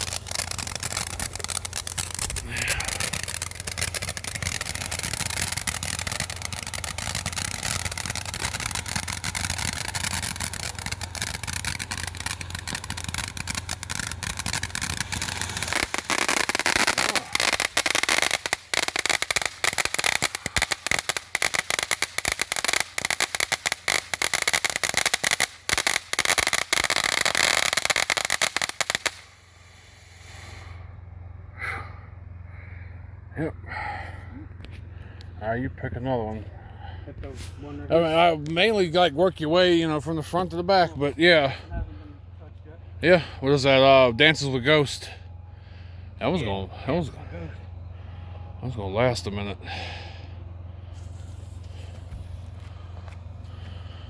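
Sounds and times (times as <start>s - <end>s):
firework crackling: 0.0s - 30.8s, 50.9s - 54.0s
firework fountain hissing: 0.0s - 31.0s, 50.9s - 53.9s.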